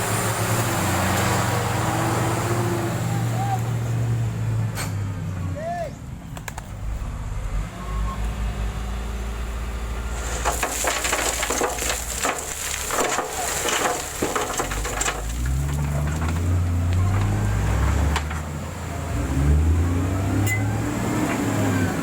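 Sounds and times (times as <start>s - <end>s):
gravel crunching: 10.1s - 18.6s.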